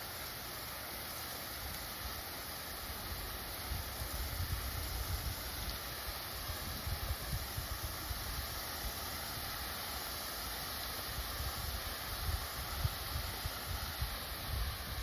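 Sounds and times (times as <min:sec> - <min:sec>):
steady hissing noise: 0:00.0 - 0:15.0
wind rumbling on microphone: 0:03.6 - 0:05.8, 0:06.4 - 0:09.0, 0:11.0 - 0:15.0.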